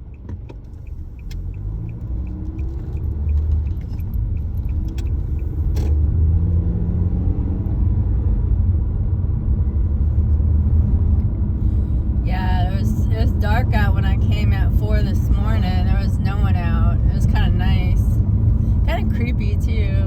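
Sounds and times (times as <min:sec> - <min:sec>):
turn signal ticking: 0:00.0 - 0:06.1
road rumble: 0:00.0 - 0:20.0
car engine accelerating: 0:00.2 - 0:20.0.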